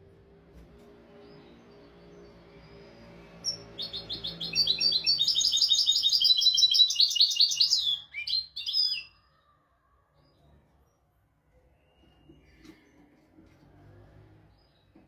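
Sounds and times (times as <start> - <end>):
finch singing trilled notes: 1.3 - 9.2.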